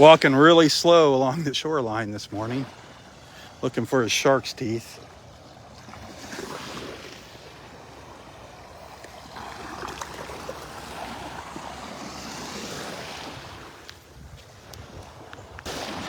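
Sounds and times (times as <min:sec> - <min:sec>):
waves washing onto beach: 0:00.0 - 0:16.0
wind on microphone: 0:10.4 - 0:16.0.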